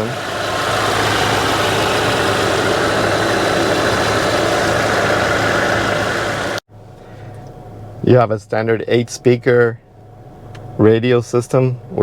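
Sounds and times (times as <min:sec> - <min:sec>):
car engine idling: 0:00.0 - 0:06.6.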